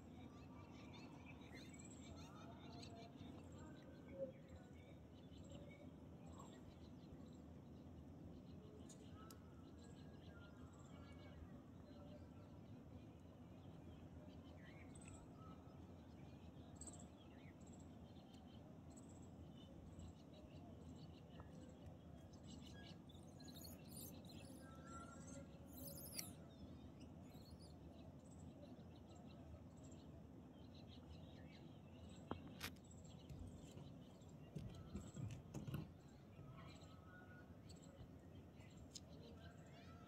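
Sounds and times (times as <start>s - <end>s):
faint bird chirps: 19.9s - 28.4s.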